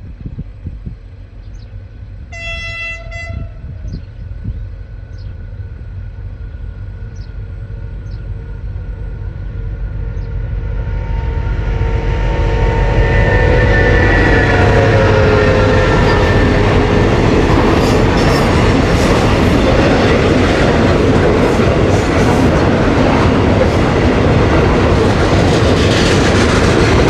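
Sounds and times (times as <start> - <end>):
train engine and wheels: 0.0 - 27.0
locomotive horn: 2.3 - 3.8, 11.0 - 18.6.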